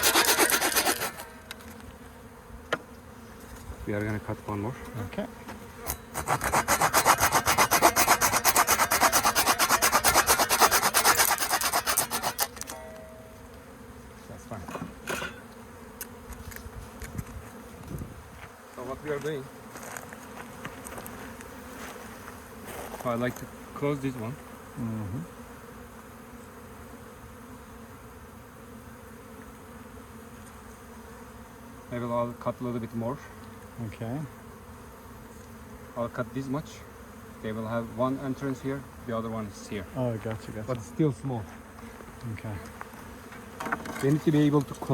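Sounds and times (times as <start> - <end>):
handsaw cutting wood: 0.0 - 1.3, 5.8 - 12.8
bees buzzing: 0.0 - 44.9.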